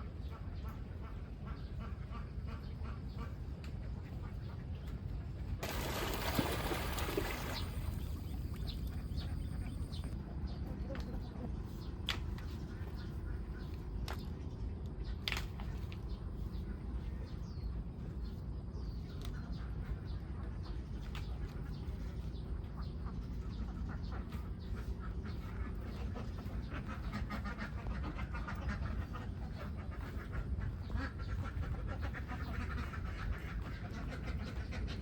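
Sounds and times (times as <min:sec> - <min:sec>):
ducks quacking: 0:00.0 - 0:04.8, 0:15.7 - 0:35.0
steady low rumble: 0:00.0 - 0:35.0.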